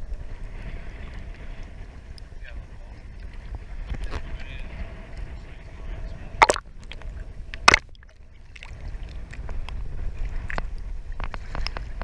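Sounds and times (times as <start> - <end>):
wind rumble on microphone: 0.0 - 12.0
water lapping at boat hull: 6.3 - 12.0.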